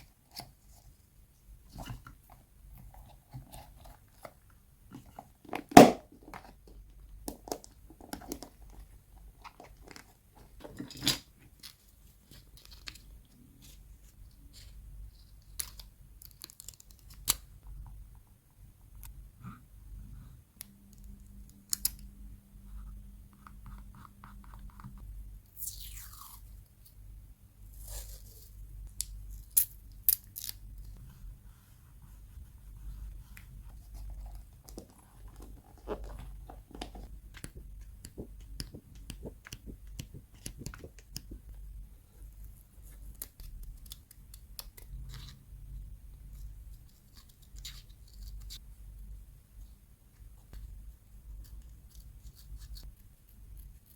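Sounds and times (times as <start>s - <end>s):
paper handling ticks and clicks: 33.4s - 41.5s.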